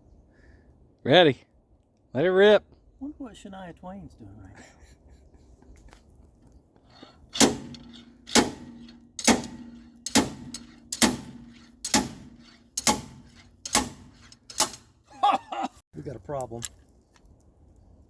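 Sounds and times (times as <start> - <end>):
hammer blows on metal: 7.0 - 14.9.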